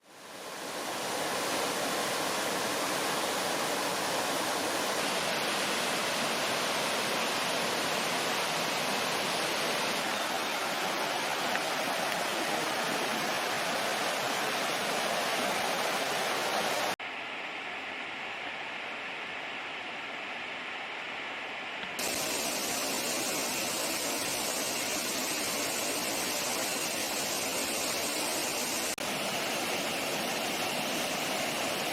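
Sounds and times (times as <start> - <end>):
waterfall rushing: 0.0 - 17.0, 22.0 - 31.9.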